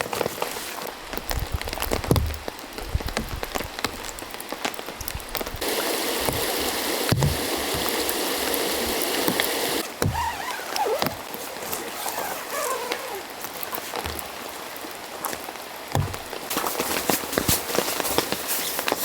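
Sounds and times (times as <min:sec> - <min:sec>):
rain hissing: 0:00.4 - 0:19.0
stream water: 0:05.6 - 0:19.0
faint squeaky glides: 0:10.1 - 0:14.0.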